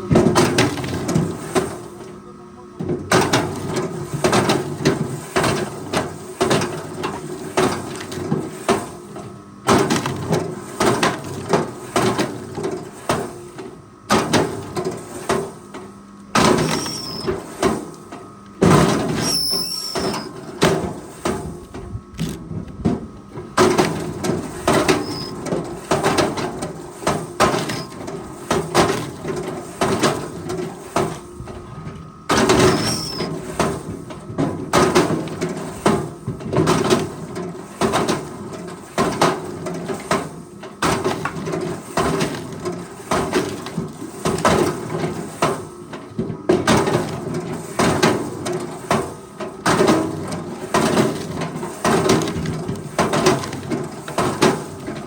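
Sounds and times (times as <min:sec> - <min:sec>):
machinery knocking and clattering: 0:02.8 - 0:55.0
high squeaks: 0:16.6 - 0:17.4, 0:19.2 - 0:20.4, 0:24.9 - 0:25.4, 0:32.6 - 0:33.3.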